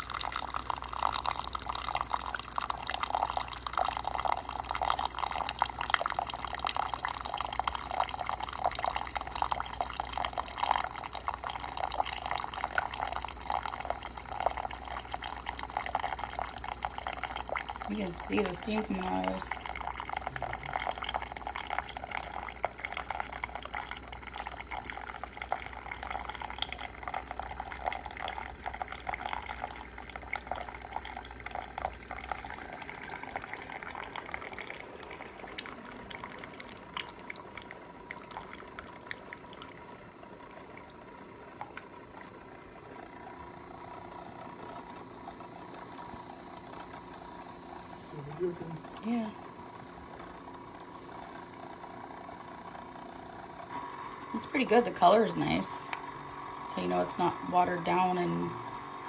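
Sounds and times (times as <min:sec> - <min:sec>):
coffee spluttering into cup: 0:00.0 - 0:39.9
coffee machine humming: 0:00.0 - 0:59.0.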